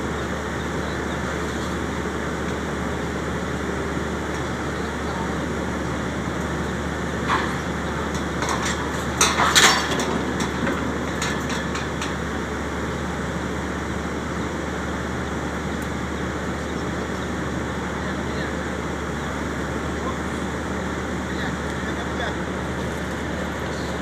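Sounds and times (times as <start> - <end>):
diesel engine running: 0.0 - 24.0
metallic clanks: 7.2 - 12.3.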